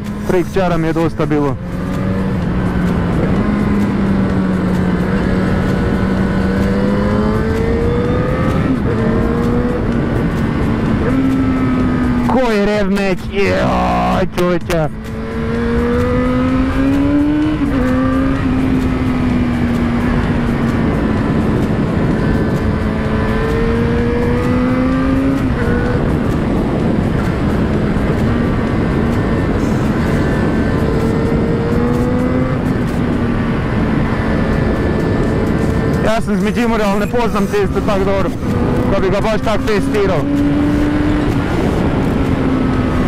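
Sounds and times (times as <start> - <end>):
heavy wind rush: 0.0 - 43.0
motorcycle engine running: 0.0 - 43.0.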